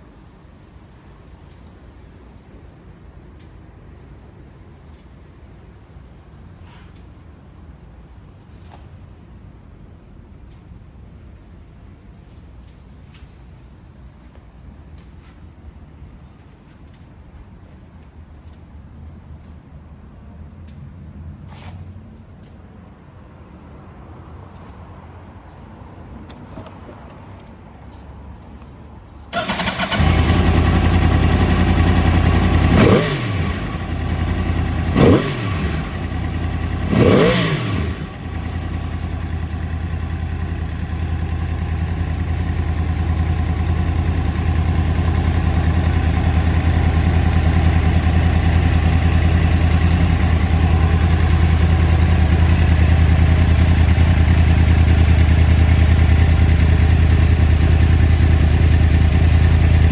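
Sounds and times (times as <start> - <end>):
motorcycle engine revving and idling: 29.3 - 59.9.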